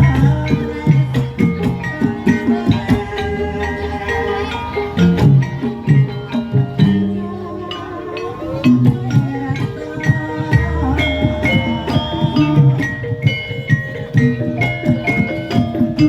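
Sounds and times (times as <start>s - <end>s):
drum strokes: 0.0s - 7.7s, 8.3s - 16.0s.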